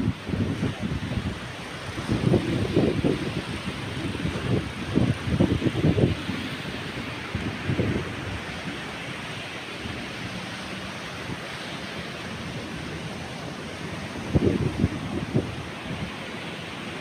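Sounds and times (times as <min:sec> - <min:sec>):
wind gusts buffeting microphone: 0:00.0 - 0:17.0
wind-driven rain hissing: 0:00.0 - 0:17.0.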